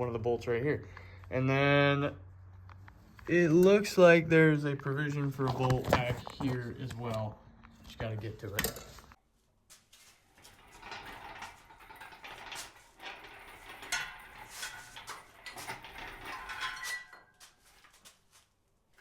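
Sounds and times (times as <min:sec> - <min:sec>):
metal tool scraping: 0:10.4 - 0:17.9.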